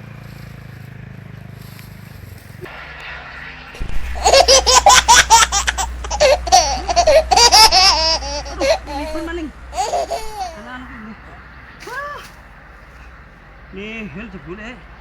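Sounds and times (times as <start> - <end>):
low steady hum: 1.6 - 15.0
loud hearty laughter: 3.8 - 11.2.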